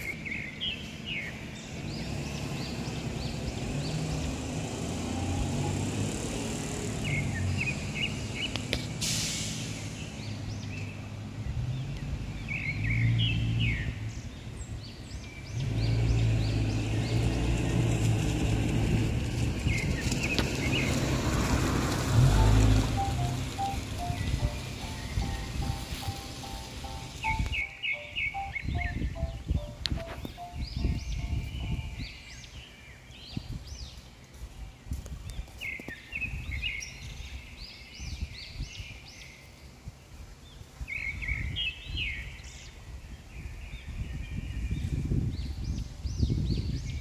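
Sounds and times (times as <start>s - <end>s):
bird chirping: 0.0s - 4.8s, 22.2s - 39.8s
brief hiss: 8.8s - 10.0s
steady low rumble: 9.7s - 32.6s.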